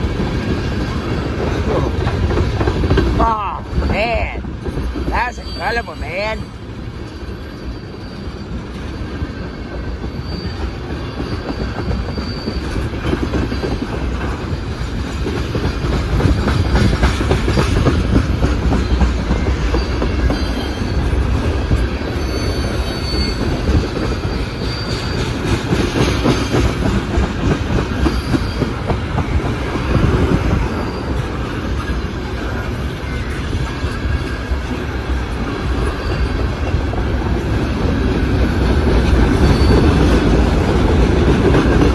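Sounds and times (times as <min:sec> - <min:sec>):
freight train cars rumbling: 0:00.0 - 0:41.9
high-pitched wheel squeals: 0:07.1 - 0:13.8, 0:19.4 - 0:25.4, 0:39.2 - 0:40.3.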